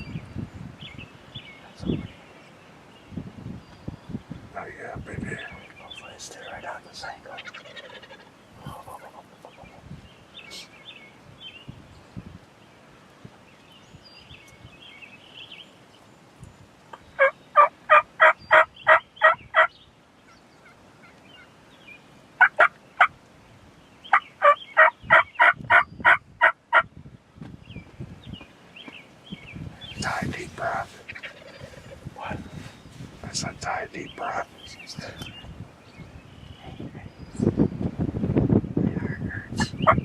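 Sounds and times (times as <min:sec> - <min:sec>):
wild turkey yelping: 0:07.2 - 0:09.8, 0:17.2 - 0:19.7, 0:22.4 - 0:23.1, 0:24.1 - 0:26.8, 0:30.6 - 0:32.7.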